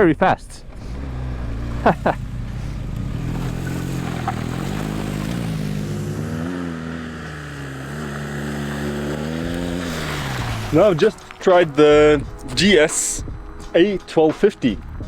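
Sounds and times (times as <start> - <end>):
motorcycle engine pulling away: 0.6 - 12.4.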